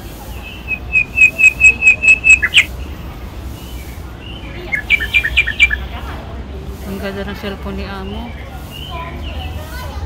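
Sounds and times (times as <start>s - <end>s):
bird singing whistled notes: 0.3s - 2.8s, 3.6s - 5.9s.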